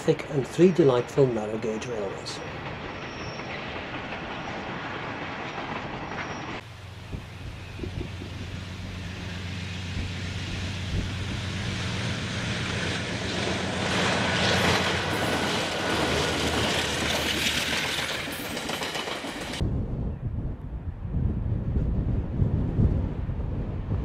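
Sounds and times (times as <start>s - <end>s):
locomotive engine hum: 0.0s - 19.6s
wagons rumbling on rails: 0.0s - 19.6s.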